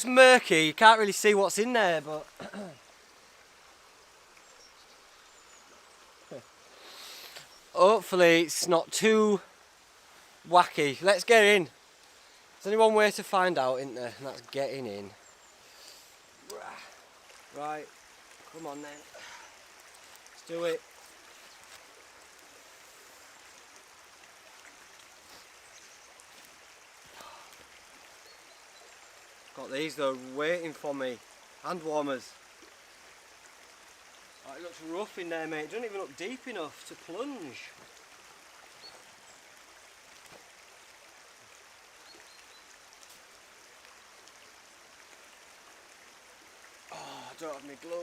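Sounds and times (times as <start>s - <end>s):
stream water flowing: 0.0s - 48.0s.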